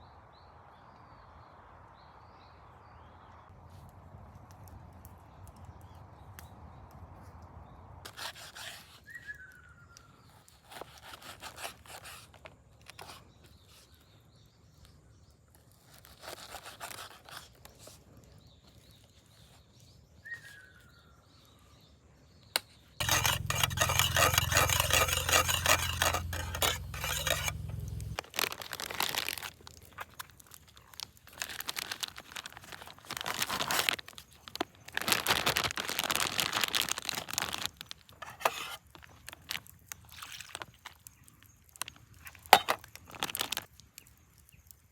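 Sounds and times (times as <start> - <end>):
rustling and scraping handling: 23.0 - 30.6, 36.2 - 39.6.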